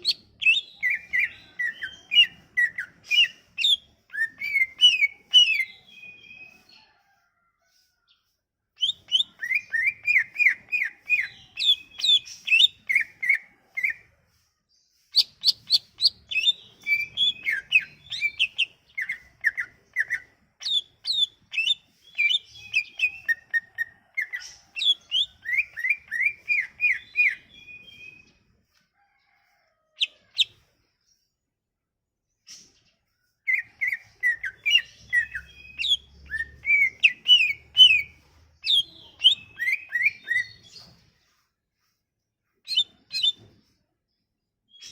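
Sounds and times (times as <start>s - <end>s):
bird singing chirps and whistles: 0.0s - 6.6s, 8.8s - 14.0s, 15.1s - 28.3s, 33.5s - 40.9s.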